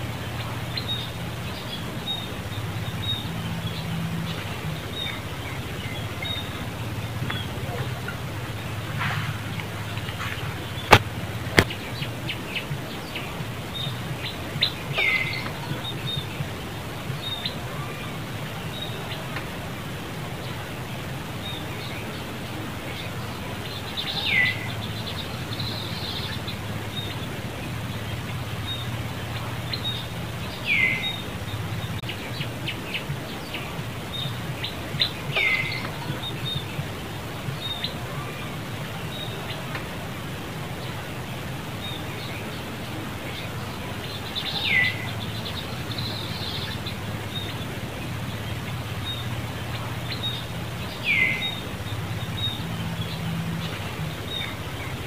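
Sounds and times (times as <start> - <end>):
high bird chirps: 0.0 - 36.9
steady low background noise: 0.0 - 55.0
sharp clicks: 9.6 - 12.1.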